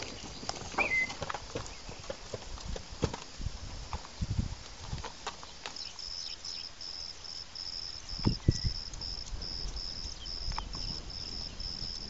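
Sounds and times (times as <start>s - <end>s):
insect chirping: 0.0s - 2.0s, 5.4s - 12.0s.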